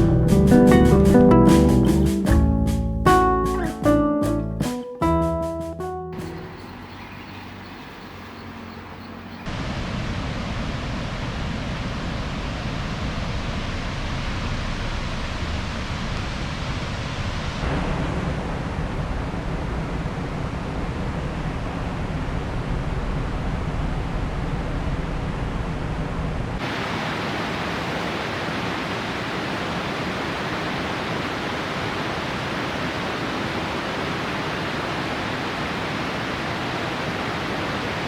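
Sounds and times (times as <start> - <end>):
waterfall rushing: 26.6 - 38.0.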